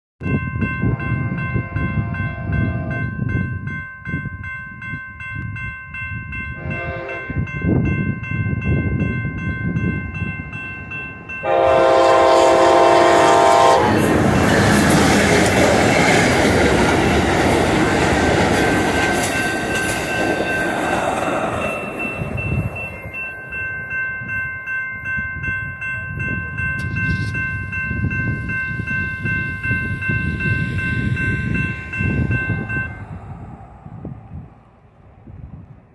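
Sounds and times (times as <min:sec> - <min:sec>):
railroad crossing bells ringing: 0:00.2 - 0:34.4
passing train rumble and clatter: 0:00.2 - 0:35.9
train horn blast: 0:01.6 - 0:03.1, 0:06.6 - 0:07.4, 0:11.4 - 0:14.2.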